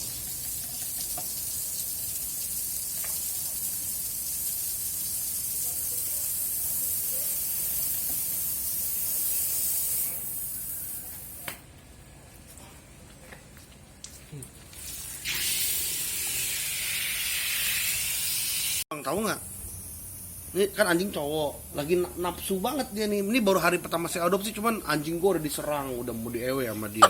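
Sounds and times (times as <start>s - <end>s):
high spraying hiss: 3.7s - 11.5s.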